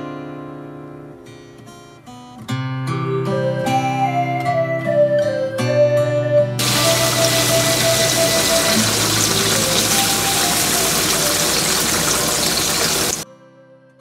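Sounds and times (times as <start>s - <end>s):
faint guitar music: 0.0s - 13.0s
river water rushing: 6.6s - 13.2s.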